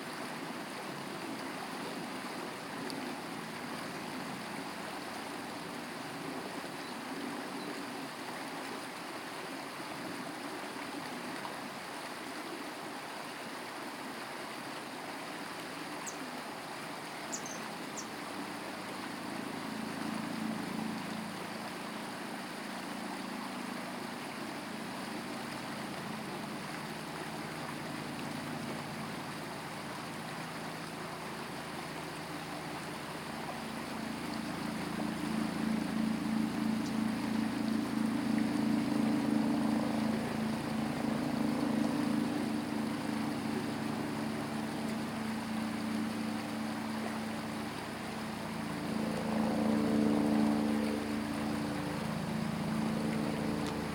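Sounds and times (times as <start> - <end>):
stream water flowing: 0.0 - 53.9
low drone: 19.2 - 53.9
faint high ticks: 53.1 - 53.9.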